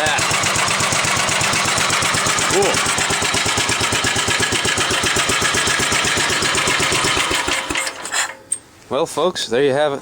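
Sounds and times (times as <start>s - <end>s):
single-cylinder engine idling: 0.0s - 8.4s.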